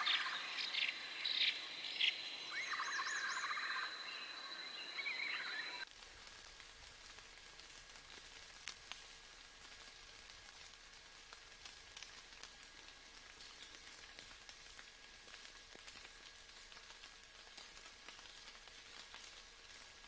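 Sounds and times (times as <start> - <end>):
light rain pattering: 0.0 - 20.0
small drip ticks: 6.2 - 20.0.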